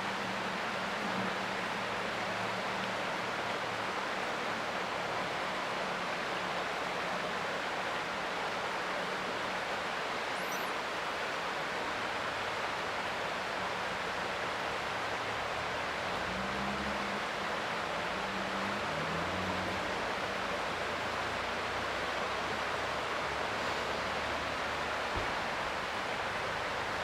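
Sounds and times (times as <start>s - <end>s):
creek water flowing: 0.0s - 27.0s.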